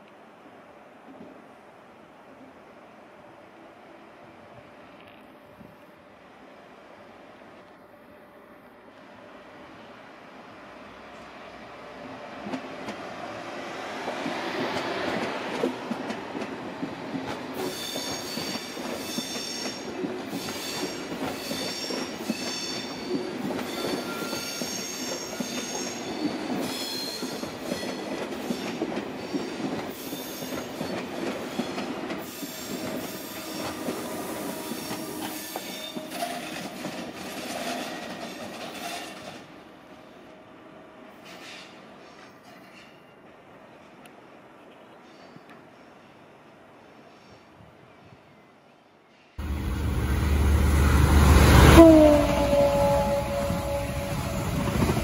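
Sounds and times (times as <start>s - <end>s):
train wheels rolling on rails: 10.8s - 40.4s, 41.0s - 46.4s, 49.1s - 55.0s
train wheels squealing: 17.5s - 39.4s, 41.1s - 43.2s, 45.0s - 46.3s.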